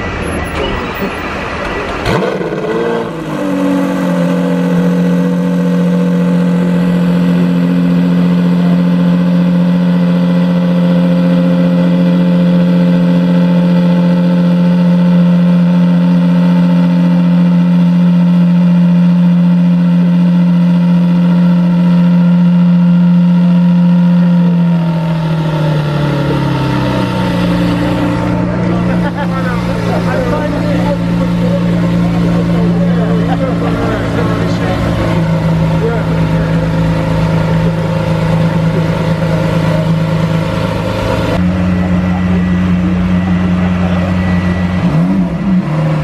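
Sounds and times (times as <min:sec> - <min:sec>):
car engine revving and idling: 0:00.0 - 0:46.0.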